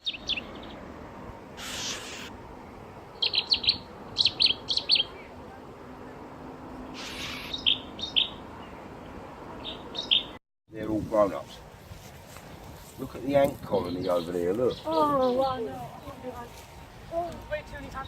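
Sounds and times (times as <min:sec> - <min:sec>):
small bird chirping: 0:00.0 - 0:00.8, 0:01.6 - 0:02.4, 0:03.1 - 0:05.3, 0:07.0 - 0:08.8, 0:09.6 - 0:10.4
bursts of hiss: 0:01.6 - 0:02.3.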